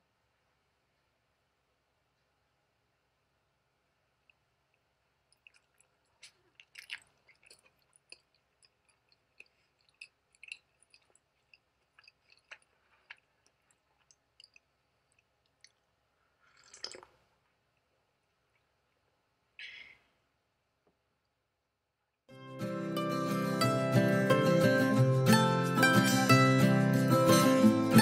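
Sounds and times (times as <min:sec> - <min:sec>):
close-up chewing: 0:04.2 - 0:17.1.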